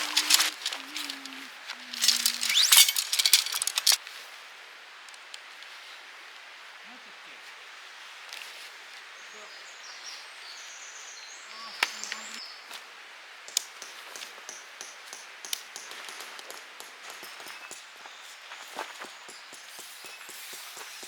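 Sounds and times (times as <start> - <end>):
birds chirping: 0.0 - 4.0
camping gear clicks and taps: 0.0 - 4.0.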